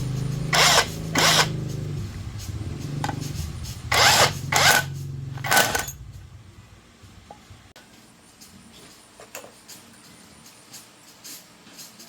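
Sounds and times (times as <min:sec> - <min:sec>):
low motor hum: 0:00.0 - 0:07.8
power tool bursts: 0:00.5 - 0:01.6, 0:03.9 - 0:06.0.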